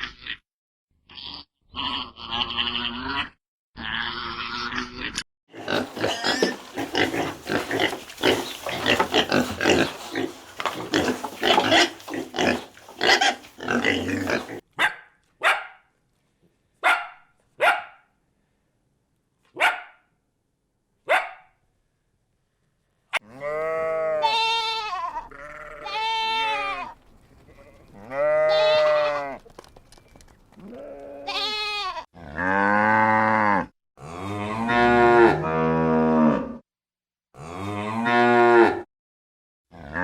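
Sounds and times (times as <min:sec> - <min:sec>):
farm animal calling: 0:05.6 - 0:14.6, 0:23.4 - 0:26.9, 0:27.5 - 0:29.4, 0:30.6 - 0:32.0.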